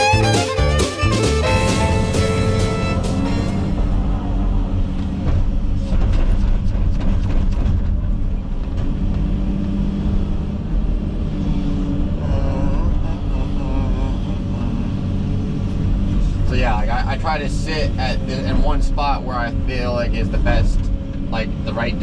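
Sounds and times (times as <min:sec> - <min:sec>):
excavator diesel engine running: 0:00.0 - 0:09.0.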